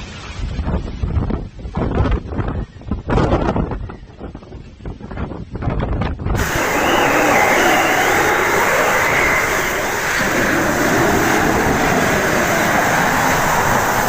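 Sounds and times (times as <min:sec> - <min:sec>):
storm wind: 0:00.0 - 0:14.0
heavy rain: 0:06.4 - 0:14.0.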